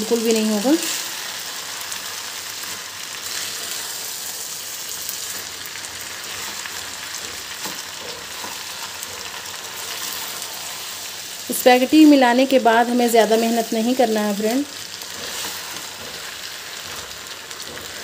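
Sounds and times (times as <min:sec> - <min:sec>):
food sizzling in a wok: 0:00.0 - 0:18.0
metal tongs tossing food: 0:11.8 - 0:18.0.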